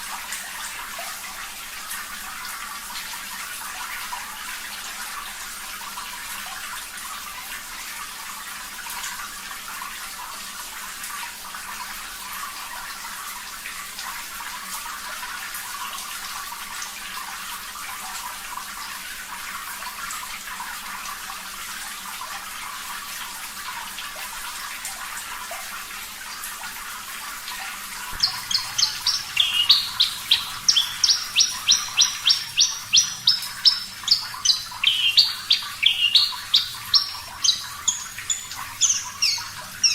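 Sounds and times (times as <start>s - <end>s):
running water: 0.0s - 39.9s
bird singing sharp high notes: 28.2s - 39.9s.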